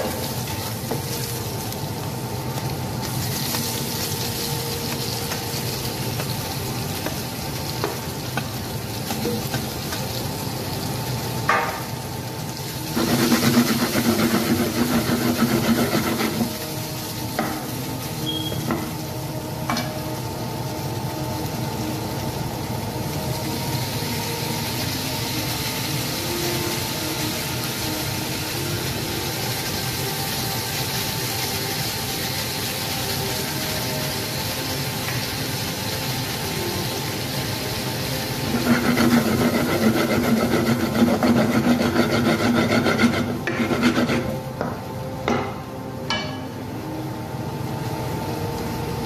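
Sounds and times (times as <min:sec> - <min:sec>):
potatoes sizzling in oil: 0:00.0 - 0:49.0
spatula stirring and scraping: 0:12.9 - 0:16.6, 0:38.5 - 0:44.4.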